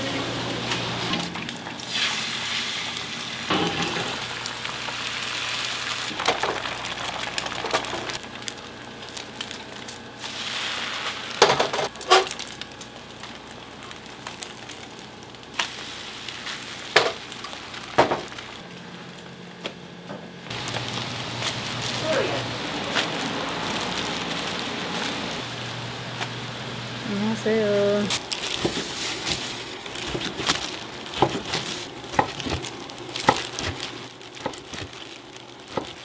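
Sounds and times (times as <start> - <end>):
food sizzling in a pan: 1.8 - 8.2, 10.2 - 12.4, 15.4 - 18.5.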